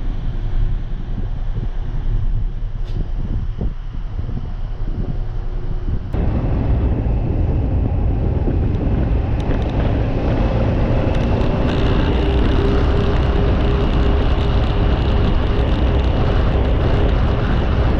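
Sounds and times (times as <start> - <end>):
faint steady hum: 0.0 - 17.9
vehicle running noise: 3.9 - 17.9.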